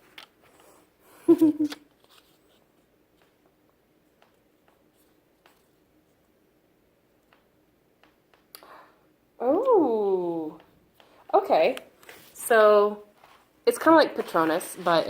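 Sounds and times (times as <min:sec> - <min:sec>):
low room hum: 0:00.0 - 0:15.0
hands rustling a bag: 0:13.1 - 0:15.0.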